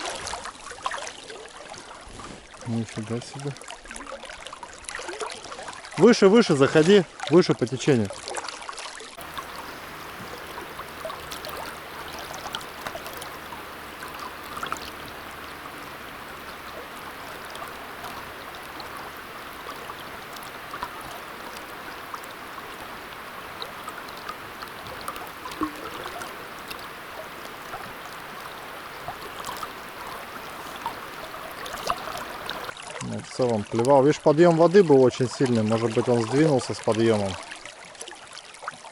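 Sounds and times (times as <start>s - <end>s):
river current rushing: 9.2s - 32.7s
water ticking: 9.2s - 32.7s.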